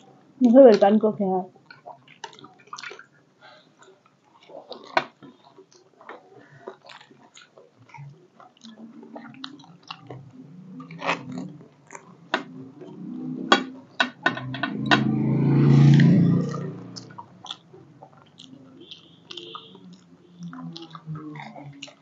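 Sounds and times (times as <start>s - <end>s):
crunching and chewing crisp shells: 0.0s - 22.0s.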